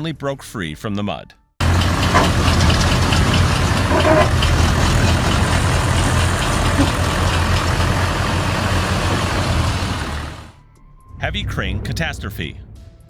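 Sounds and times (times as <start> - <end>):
mechanical rattle: 1.6 - 10.2
diesel engine droning: 1.6 - 10.6.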